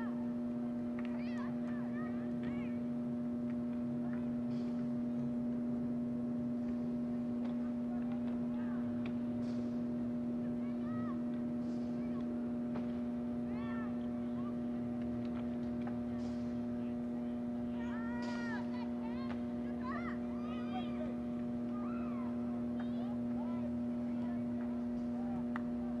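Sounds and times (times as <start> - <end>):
steady hum: 0.0 - 26.0
faint shouts and calls: 1.1 - 2.9, 10.4 - 12.4, 13.4 - 14.9, 16.7 - 26.0.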